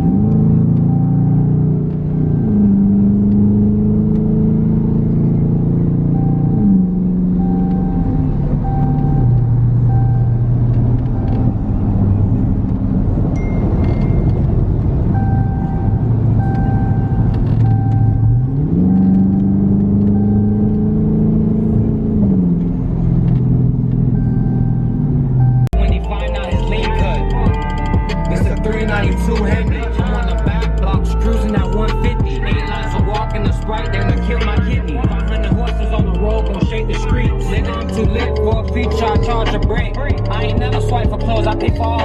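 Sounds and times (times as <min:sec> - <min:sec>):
car engine shifting gears: 0:00.0 - 0:42.0
short beeps: 0:05.3 - 0:12.3, 0:13.4 - 0:21.0, 0:24.1 - 0:29.9.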